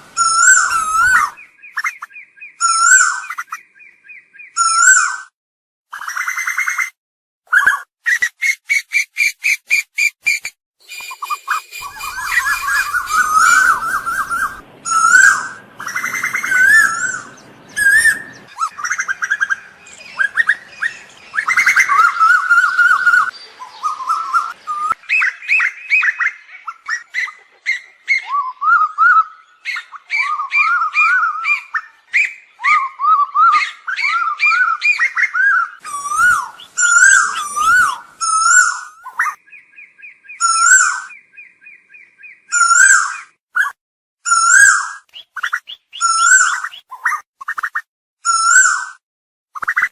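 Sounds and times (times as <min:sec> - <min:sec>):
birds calling with whistled phrases: 0:00.0 - 0:05.3, 0:05.9 - 0:49.0.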